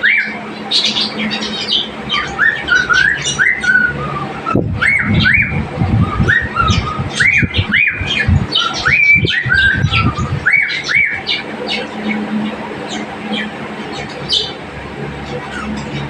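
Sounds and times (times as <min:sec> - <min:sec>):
bird chirps and squawks: 0:00.0 - 0:16.0
cockatiel whistling: 0:01.7 - 0:11.4.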